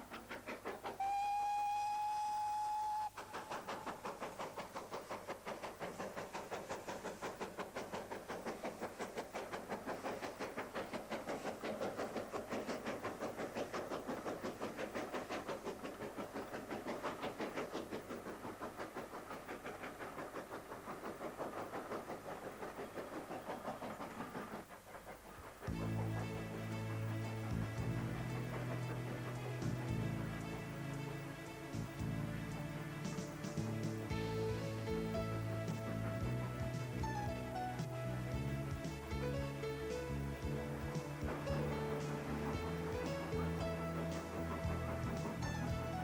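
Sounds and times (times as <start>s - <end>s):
locomotive exhaust beats: 0.0s - 46.0s
steam locomotive whistle: 0.9s - 3.5s.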